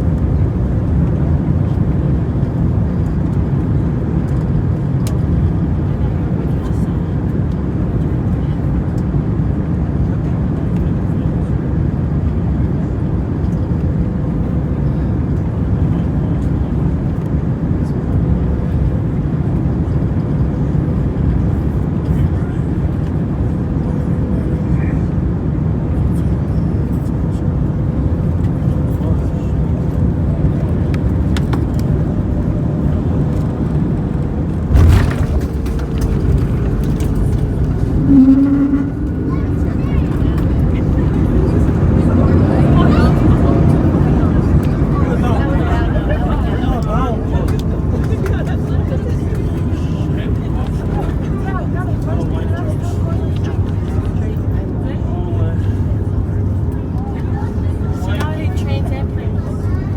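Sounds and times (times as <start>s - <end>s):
airplane cabin engine rumble: 0.0s - 59.9s
loud thump: 34.7s - 39.0s.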